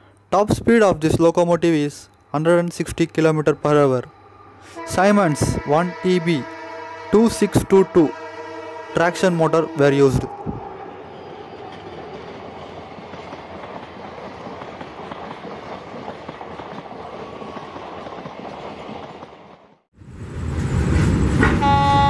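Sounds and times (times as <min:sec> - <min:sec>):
locomotive horn chord: 0:04.6 - 0:11.0, 0:21.4 - 0:22.0
train wheels rushing on rails: 0:04.8 - 0:22.0.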